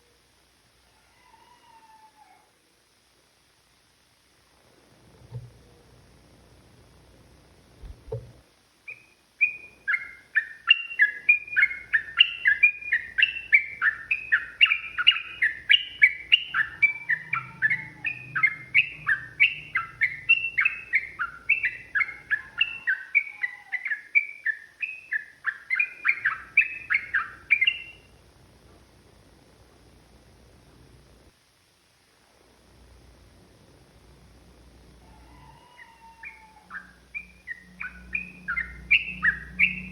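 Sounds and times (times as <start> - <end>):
bird singing sliding notes: 8.9 - 28.0, 36.7 - 39.9.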